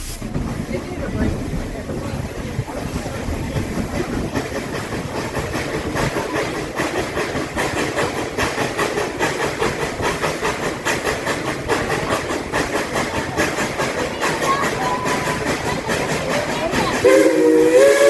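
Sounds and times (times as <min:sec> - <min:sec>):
steam hiss: 0:00.0 - 0:18.0
steam locomotive chuffing: 0:00.0 - 0:18.0.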